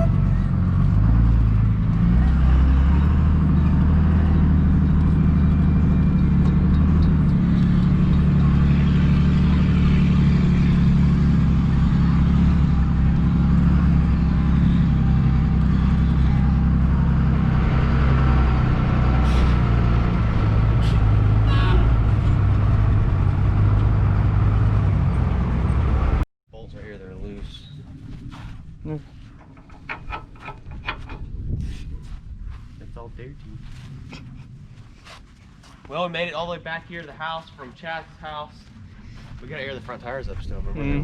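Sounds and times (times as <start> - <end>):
truck diesel engine droning: 0.0 - 26.2.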